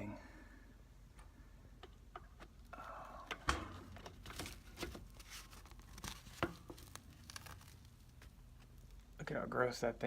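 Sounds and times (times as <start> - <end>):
cardboard frame scraping and crinkling: 4.0 - 8.8.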